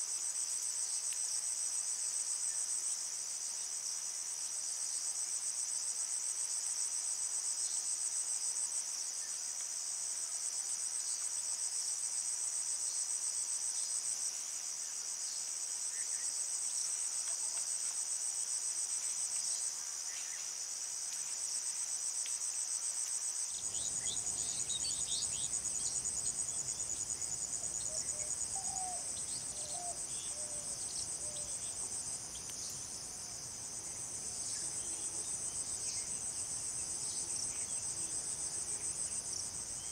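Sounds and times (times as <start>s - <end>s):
insects trilling: 23.4s - 39.9s.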